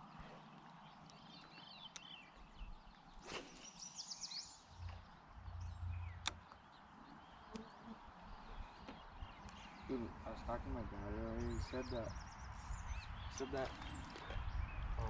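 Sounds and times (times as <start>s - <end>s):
small birds chirping: 0.0s - 15.0s
low rumble: 4.7s - 6.4s.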